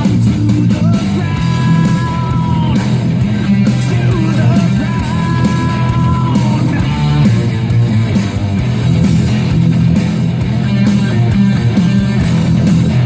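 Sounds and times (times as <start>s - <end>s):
person singing and shouting: 0.0s - 8.1s
loud rock music: 0.0s - 13.0s.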